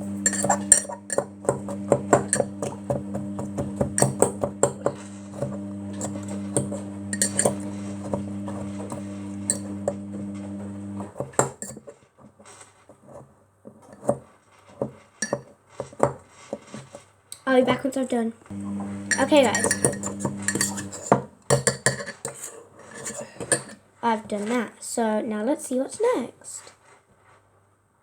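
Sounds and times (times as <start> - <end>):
steady low hum: 0.0 - 11.1, 18.5 - 21.0
fork clinking against a mug: 0.2 - 1.3, 2.1 - 2.8, 4.0 - 8.6, 19.1 - 23.8.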